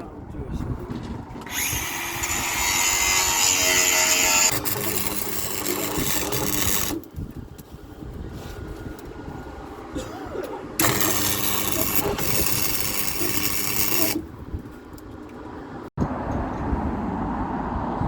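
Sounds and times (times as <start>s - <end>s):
power tool working steel: 1.4s - 7.1s, 10.8s - 14.3s.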